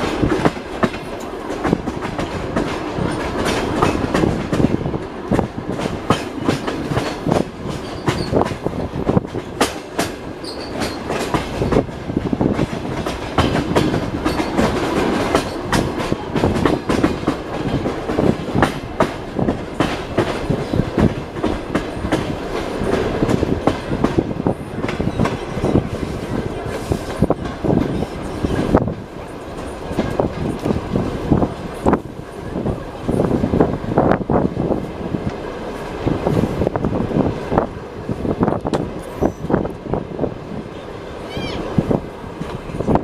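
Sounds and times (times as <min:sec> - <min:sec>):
train wheels clattering over rail joints: 0:00.0 - 0:39.8.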